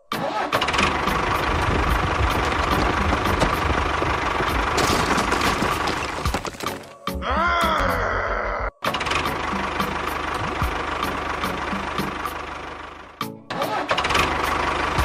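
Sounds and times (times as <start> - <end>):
small motor rattling hum: 0.7 - 5.9.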